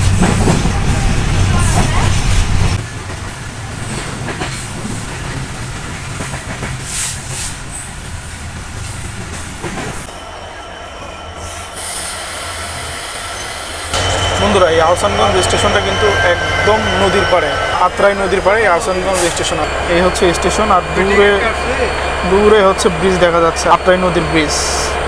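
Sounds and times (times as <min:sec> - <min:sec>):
rumble of wheels on rail: 0:00.0 - 0:25.0
clacks over rail joints: 0:03.0 - 0:07.5.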